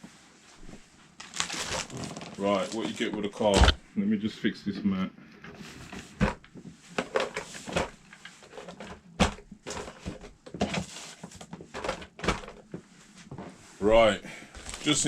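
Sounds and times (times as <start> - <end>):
packaging rustling: 1.2 - 3.2, 14.5 - 15.0.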